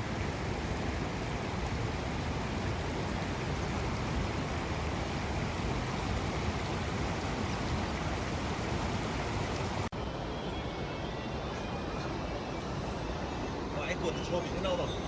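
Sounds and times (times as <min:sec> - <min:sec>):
water rushing over rapids: 0:00.0 - 0:09.9.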